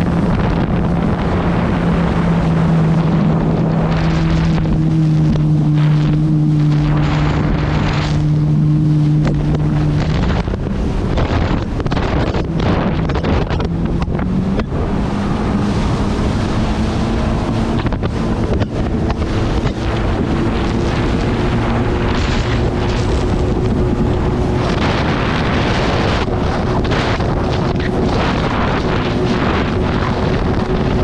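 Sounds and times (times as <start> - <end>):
jet ski engine running: 0.0 - 31.0
wind buffeting microphone: 0.0 - 31.0.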